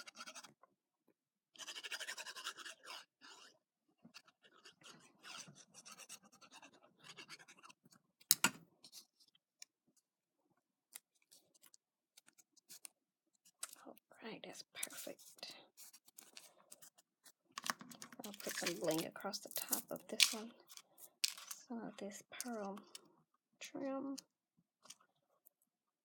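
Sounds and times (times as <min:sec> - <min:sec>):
paper scratching and rustling: 0:00.0 - 0:00.5, 0:04.1 - 0:07.8, 0:14.8 - 0:21.6.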